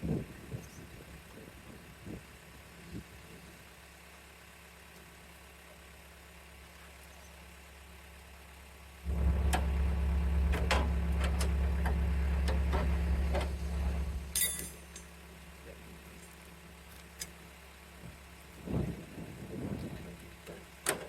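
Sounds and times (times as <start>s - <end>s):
garden tractor engine running: 0.3s - 21.0s
sharp metallic clinks: 14.3s - 15.2s.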